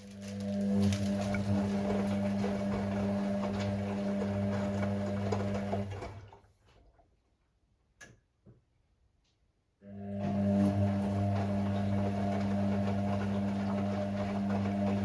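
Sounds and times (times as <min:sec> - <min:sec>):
washing machine motor humming: 0:00.0 - 0:06.5, 0:09.9 - 0:15.0.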